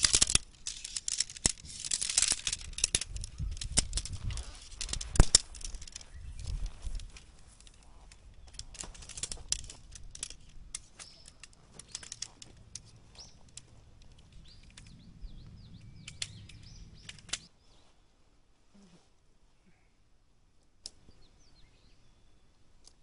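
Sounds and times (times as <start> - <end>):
camping gear clicks and rustles: 0.0 - 17.5
small birds chirping faintly: 0.3 - 23.0.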